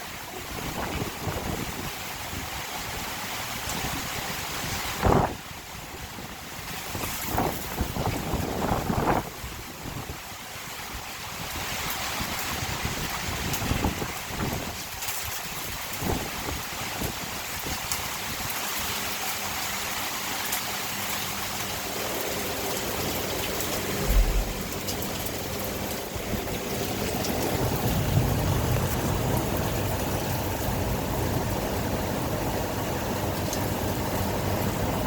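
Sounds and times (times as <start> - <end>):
steady rain: 0.0 - 35.0
thunder rumbling: 23.7 - 34.8
low thump: 24.0 - 25.0.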